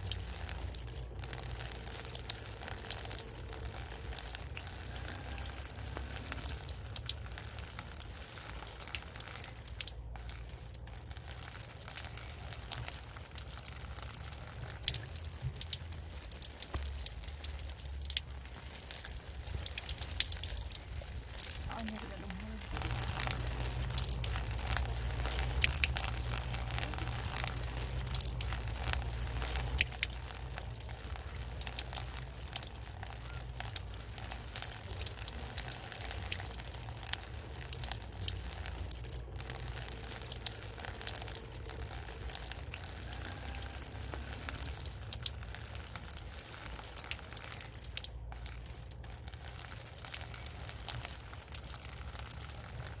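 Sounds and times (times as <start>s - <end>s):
rain pattering: 0.0s - 53.0s.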